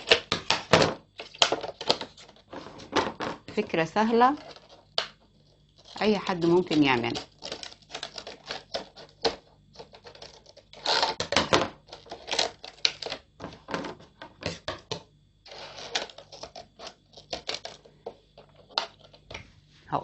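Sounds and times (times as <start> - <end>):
scissors cutting plastic bottle: 5.9 - 13.2.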